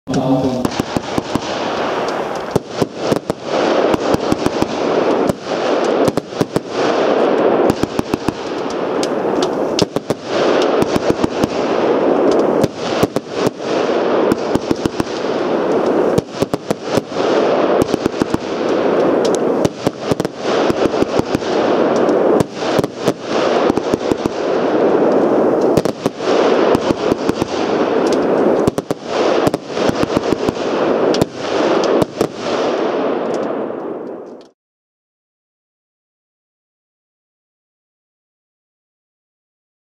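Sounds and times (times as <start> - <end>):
firework cracks: 0.1 - 34.6
firework hissing: 0.2 - 32.4.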